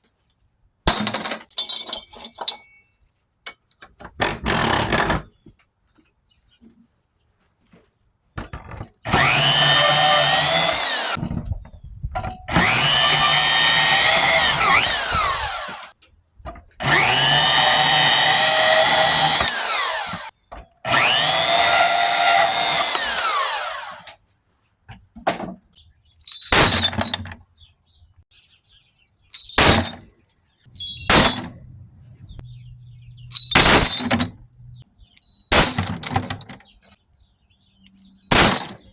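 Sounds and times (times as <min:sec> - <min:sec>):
metal pieces clinking: 0:00.9 - 0:03.0, 0:26.3 - 0:27.4, 0:29.3 - 0:30.1, 0:30.8 - 0:31.7, 0:33.3 - 0:34.7, 0:35.5 - 0:36.8, 0:38.3 - 0:38.9
bandsaw motor whining: 0:09.1 - 0:11.2, 0:12.5 - 0:15.9, 0:16.8 - 0:20.3, 0:20.9 - 0:24.2.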